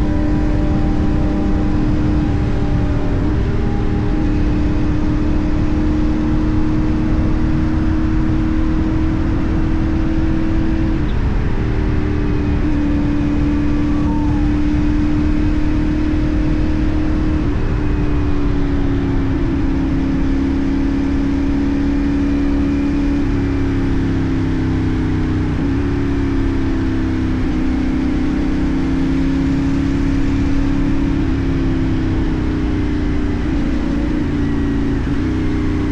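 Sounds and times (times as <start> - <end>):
motorcycle engine cruising: 0.0 - 35.9
road rush: 0.0 - 35.9
wind noise: 0.0 - 35.9.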